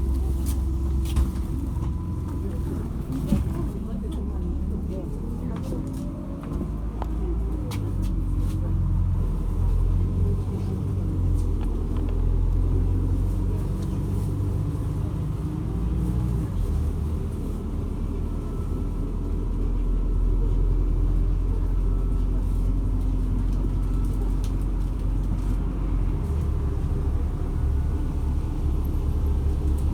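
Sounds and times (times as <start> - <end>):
bus engine rumble: 0.0 - 29.9.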